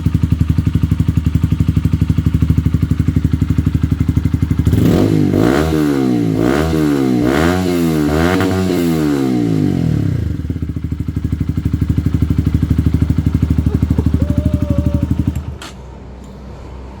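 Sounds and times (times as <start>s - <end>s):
motorcycle engine revving and idling: 0.0s - 16.1s.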